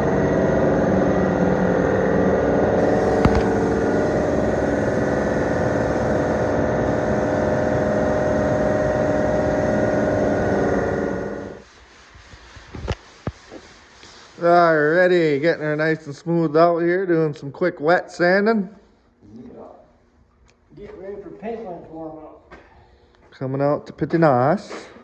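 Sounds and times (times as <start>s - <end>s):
sharp click: 2.8s - 4.3s
motor humming: 2.8s - 11.6s.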